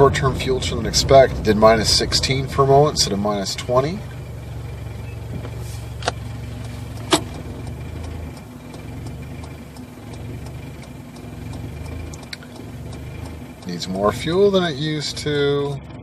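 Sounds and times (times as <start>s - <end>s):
car engine idling: 0.0s - 16.0s
sharp clicks: 6.0s - 13.8s
faint regular ticking: 6.0s - 14.6s.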